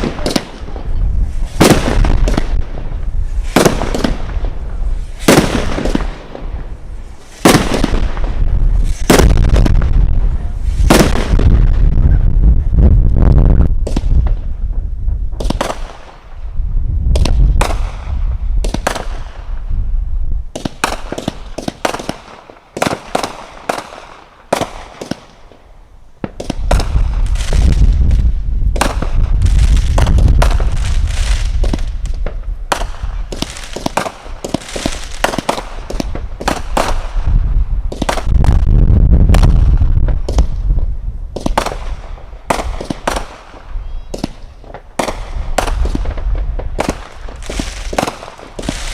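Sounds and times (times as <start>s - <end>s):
fireworks crackling reports: 0.0s - 16.5s
deep firework booms: 0.0s - 25.5s, 26.2s - 48.9s.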